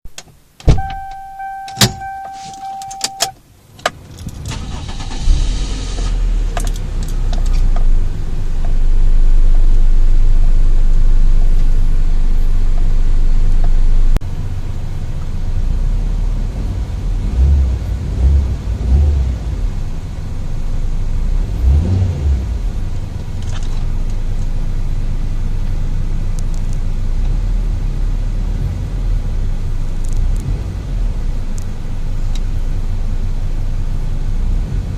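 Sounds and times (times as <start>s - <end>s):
car engine starting and idling: 0.1s - 34.9s
steady beep: 0.7s - 3.4s
engine revving: 15.6s - 19.9s, 21.2s - 23.0s, 30.0s - 31.2s.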